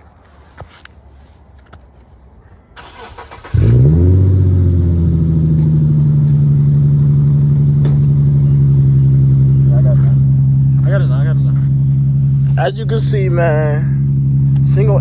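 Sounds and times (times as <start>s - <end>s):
car engine starting and idling: 2.5s - 15.0s.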